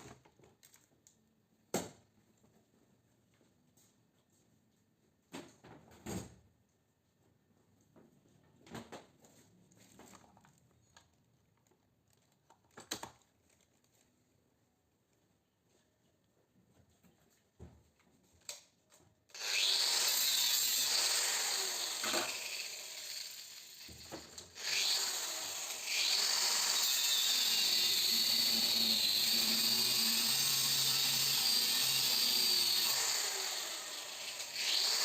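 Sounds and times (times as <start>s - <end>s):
power tool cutting or grinding: 19.3s - 35.0s.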